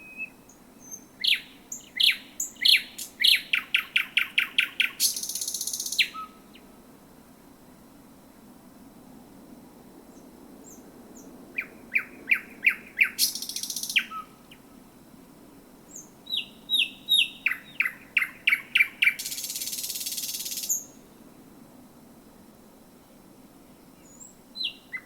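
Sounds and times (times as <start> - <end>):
thrush nightingale singing: 0.0 - 6.8, 10.1 - 14.7, 15.9 - 21.2, 23.6 - 25.0.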